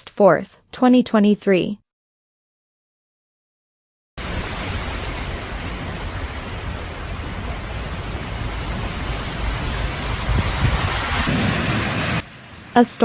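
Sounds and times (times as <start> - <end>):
wind rumble on microphone: 4.2 - 12.2
heavy hail and rain downpour: 4.2 - 13.0.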